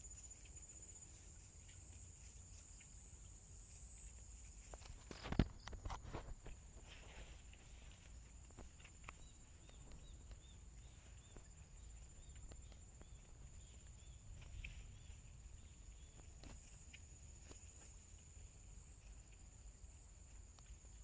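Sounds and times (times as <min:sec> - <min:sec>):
faint ticks: 0:07.5 - 0:21.0.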